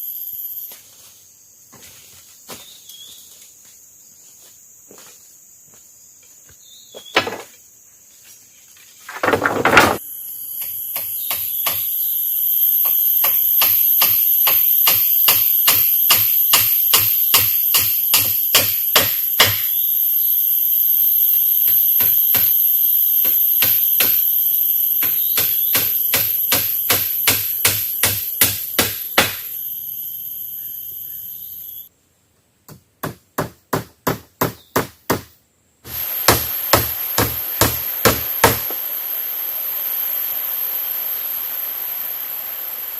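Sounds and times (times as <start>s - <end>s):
high-pitched insect drone: 0.0s - 6.6s, 7.2s - 31.9s, 35.9s - 42.9s
sharp tool strikes: 10.6s - 12.0s, 12.8s - 19.8s, 21.7s - 22.6s, 23.2s - 24.3s, 25.0s - 29.5s, 35.9s - 38.8s.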